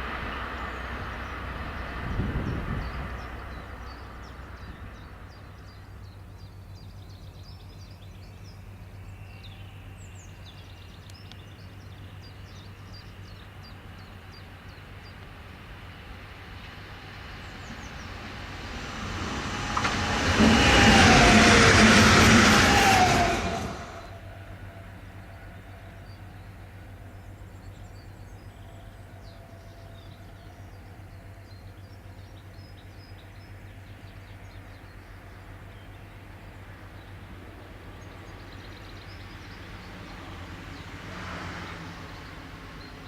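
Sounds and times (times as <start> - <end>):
train wheels rushing on rail: 11.7 - 27.4.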